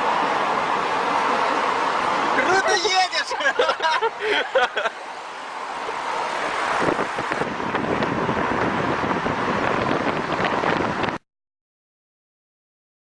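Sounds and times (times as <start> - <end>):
wind buffeting microphone: 5.8 - 11.2.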